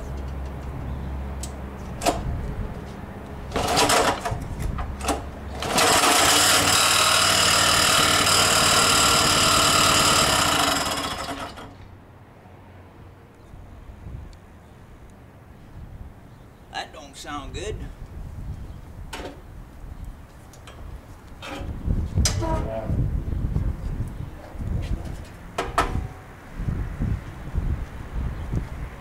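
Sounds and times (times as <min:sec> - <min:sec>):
small engine rumbling: 0:00.0 - 0:12.0
man talking: 0:16.7 - 0:17.9.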